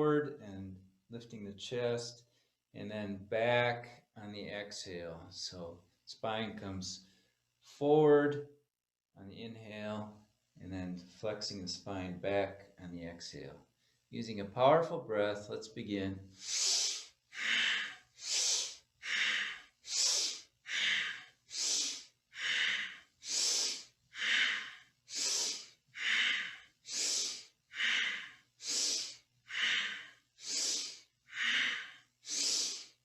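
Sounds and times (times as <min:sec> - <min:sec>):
strong rhythmic breathing: 0:16.3 - 0:33.0.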